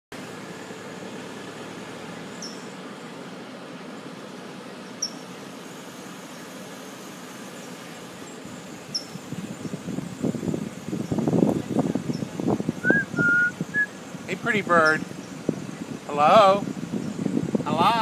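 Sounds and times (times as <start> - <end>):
small bird chirping: 2.3 - 2.8, 5.0 - 5.5, 8.8 - 9.8, 12.0 - 14.0.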